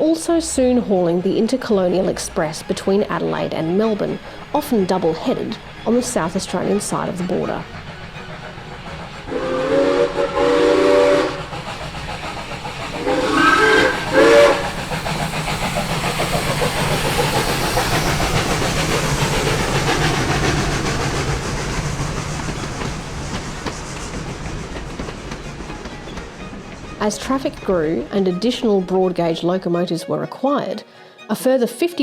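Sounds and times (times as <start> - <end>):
rush of steam and train noise: 0.0 - 30.1
steam locomotive whistle: 5.8 - 12.0, 12.6 - 15.3.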